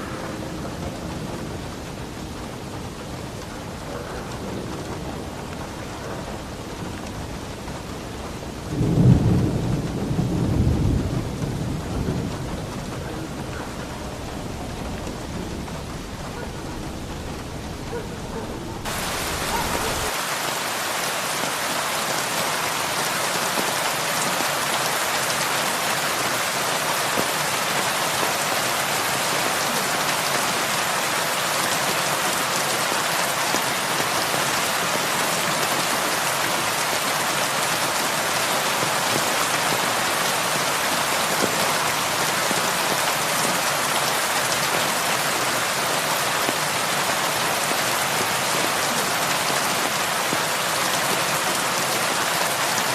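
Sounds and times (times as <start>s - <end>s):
heavy rain on a roof: 0.0s - 52.9s
low rumble of thunder: 0.1s - 20.1s.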